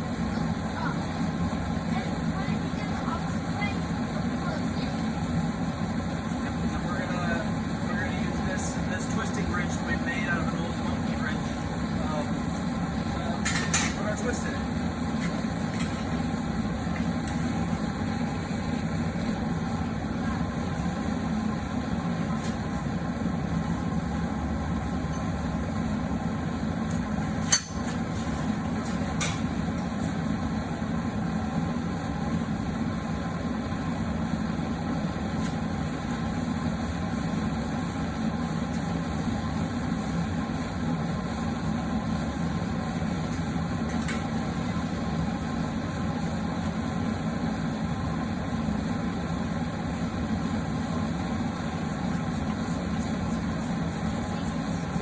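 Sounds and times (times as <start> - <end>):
forge droning: 0.0 - 55.0
sharp metallic clink: 27.5 - 27.9.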